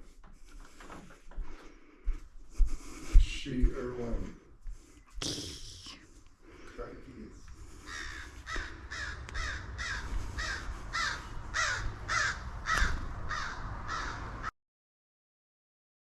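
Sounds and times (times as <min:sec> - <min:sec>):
low rumble: 0:07.4 - 0:14.5
house finch harsh call: 0:07.8 - 0:14.3.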